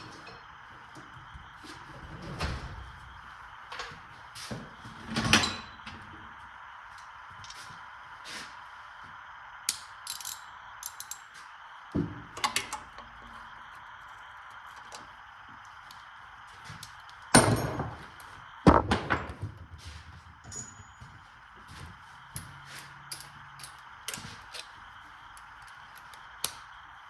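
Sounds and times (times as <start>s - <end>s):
metallic clinks of hand tools: 20.5s - 21.1s.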